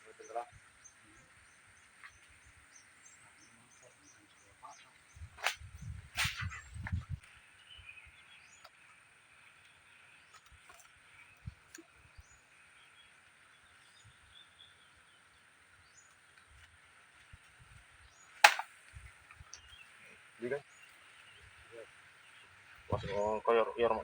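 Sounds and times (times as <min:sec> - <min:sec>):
sharp loud crack: 0:18.4 - 0:18.7.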